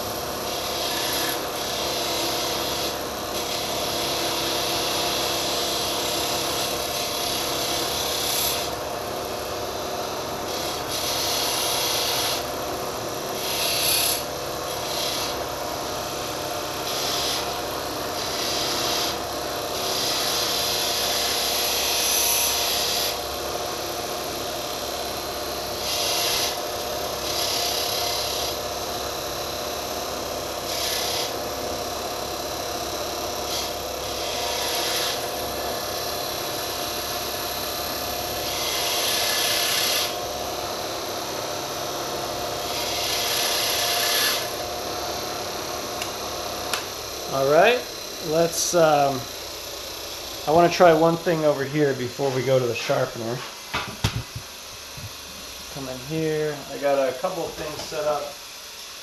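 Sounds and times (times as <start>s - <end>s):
blade grinding rasping scrape: 0.0s - 8.8s, 10.4s - 12.5s, 13.3s - 15.6s, 16.8s - 23.2s, 25.7s - 28.6s, 30.7s - 31.4s, 33.4s - 36.4s, 37.0s - 40.4s, 42.5s - 45.2s
steady machine hum: 0.0s - 59.0s.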